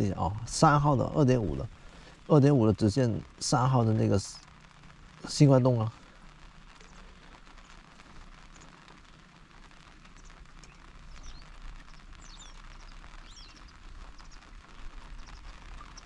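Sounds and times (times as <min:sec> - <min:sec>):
outdoor background noise: 0:00.0 - 0:16.0
small birds chirping: 0:05.4 - 0:16.0.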